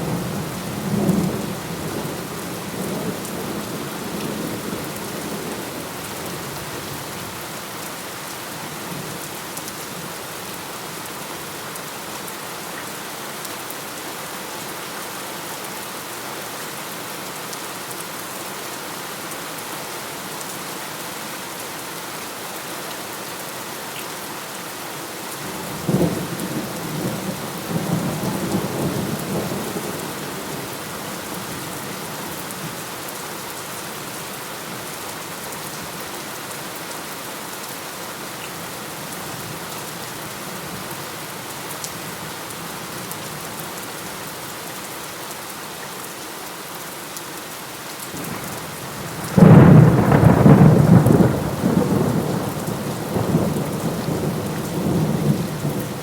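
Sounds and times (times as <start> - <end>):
heavy rain falling: 0.0 - 56.0
thunder crack and rumble: 49.2 - 56.0.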